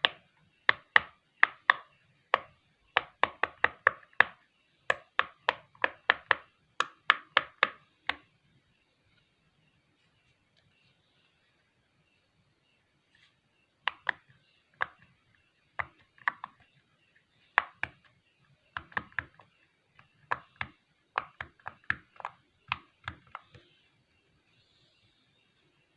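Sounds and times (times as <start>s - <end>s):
pop-it toy bubbles popping: 0.0s - 8.2s, 13.9s - 14.2s, 17.6s - 18.0s, 18.8s - 19.5s, 20.2s - 23.6s.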